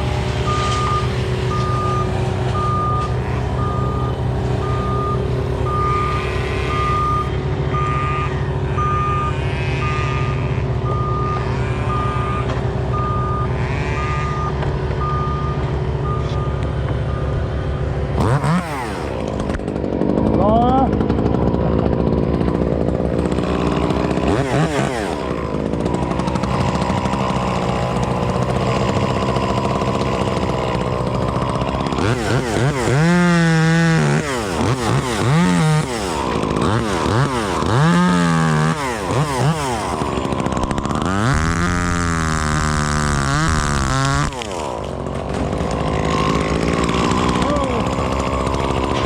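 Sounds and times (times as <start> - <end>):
chainsaw cutting wood: 0.0 - 49.0.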